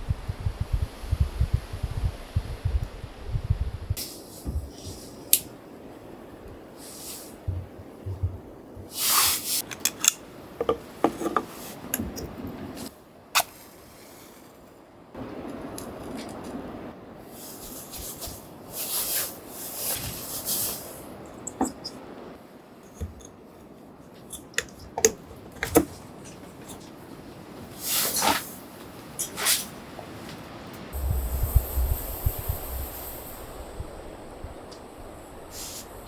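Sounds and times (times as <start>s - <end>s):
objects clicking and rustling: 9.6s - 12.9s.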